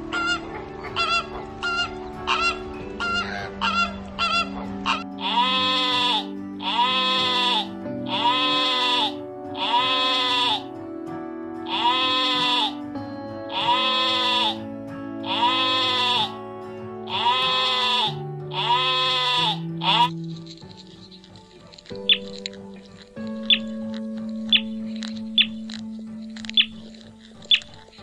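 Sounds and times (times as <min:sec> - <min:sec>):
music with sustained notes: 0:00.0 - 0:28.0
sheep bleating: 0:02.3 - 0:10.8, 0:11.6 - 0:20.2.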